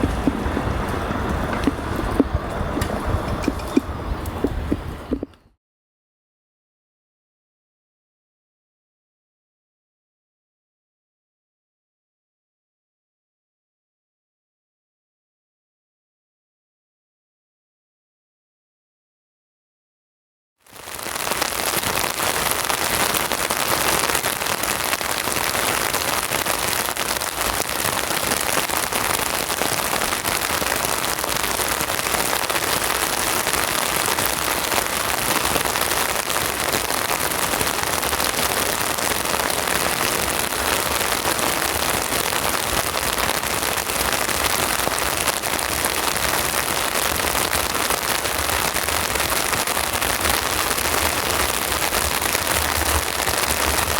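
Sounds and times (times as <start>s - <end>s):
steady rain hiss: 0.0s - 5.3s, 20.7s - 53.9s.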